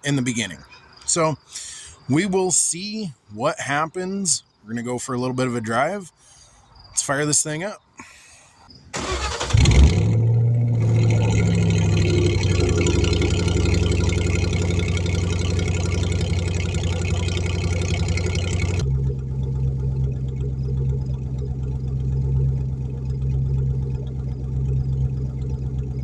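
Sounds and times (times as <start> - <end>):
car engine starting and idling: 8.9 - 26.0.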